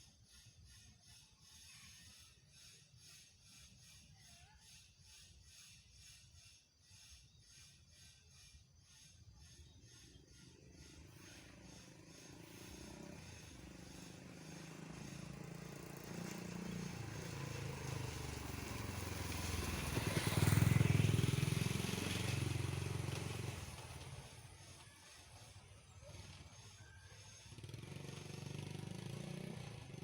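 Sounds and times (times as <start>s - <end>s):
motorcycle passing by: 9.4s - 30.0s.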